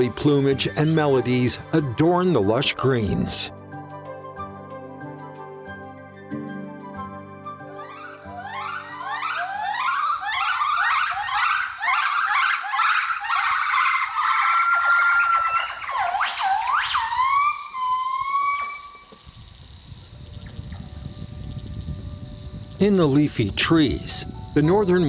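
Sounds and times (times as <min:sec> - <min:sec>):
gibbon calling with rising whoops: 0:07.7 - 0:19.8.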